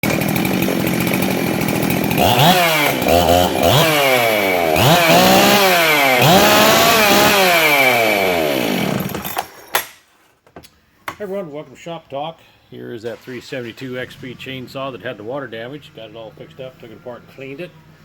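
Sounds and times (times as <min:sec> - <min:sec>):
chainsaw revving: 0:00.0 - 0:09.5.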